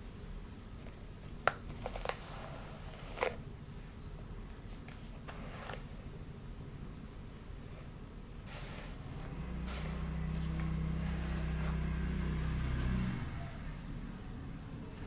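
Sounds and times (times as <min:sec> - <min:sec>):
hair brushing rustles: 0:08.4 - 0:13.4.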